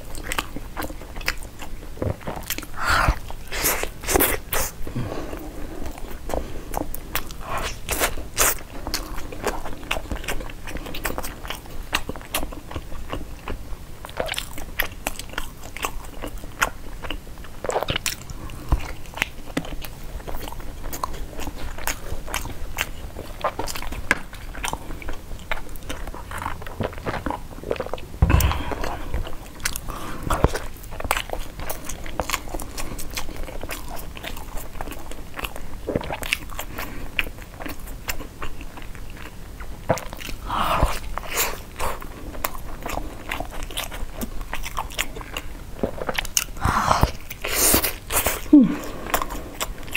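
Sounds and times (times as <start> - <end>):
biting and chewing: 0.0 - 4.7, 5.8 - 49.9
loud thump: 28.2 - 29.3.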